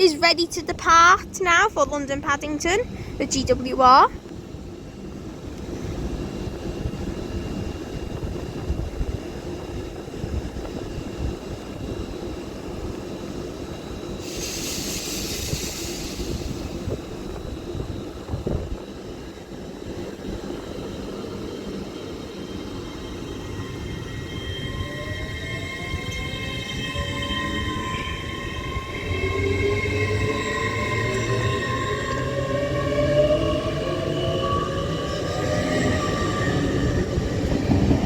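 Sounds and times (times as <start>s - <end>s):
train pulling out rumbling: 0.0s - 38.0s
burst of hiss: 14.2s - 16.9s.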